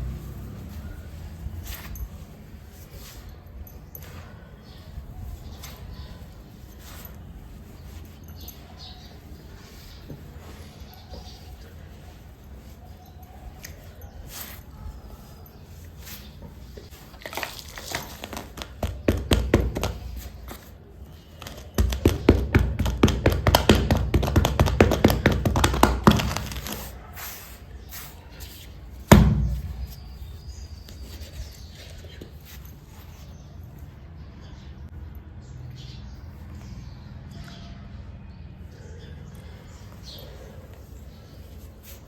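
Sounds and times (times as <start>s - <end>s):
sharp thud: 29.1s - 30.0s.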